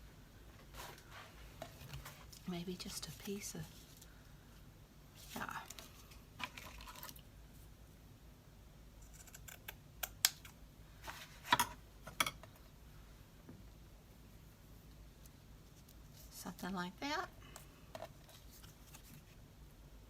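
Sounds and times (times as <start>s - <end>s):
craft materials rustling: 5.2s - 7.2s.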